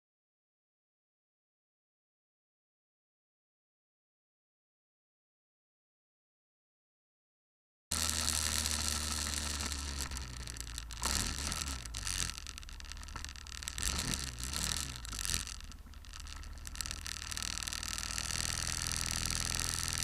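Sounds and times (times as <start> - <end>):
road noise: 7.9 - 20.0
scraping: 7.9 - 20.0
car engine and cabin hum: 8.0 - 20.0.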